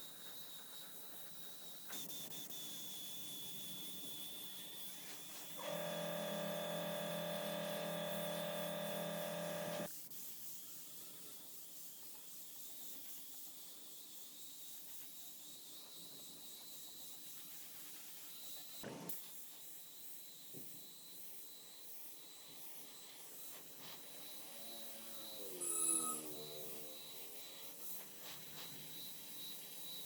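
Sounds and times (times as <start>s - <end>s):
small electric motor humming: 1.6s - 9.9s
faint high whine: 19.8s - 30.0s.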